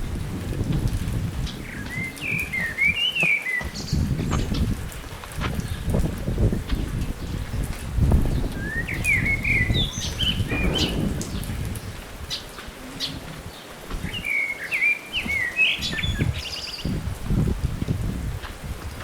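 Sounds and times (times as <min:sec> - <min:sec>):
songbird warbling: 0:08.5 - 0:16.9.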